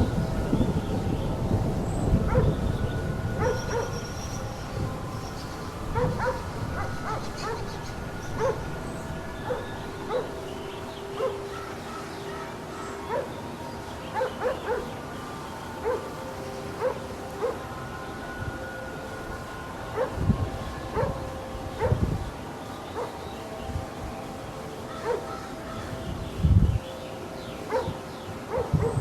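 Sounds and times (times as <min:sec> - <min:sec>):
steady droning hum: 0:00.0 - 0:28.5
dog barking and yipping: 0:06.0 - 0:07.8, 0:11.1 - 0:13.3, 0:14.2 - 0:14.9, 0:20.0 - 0:20.2, 0:24.9 - 0:25.9, 0:27.7 - 0:27.9, 0:28.5 - 0:29.0.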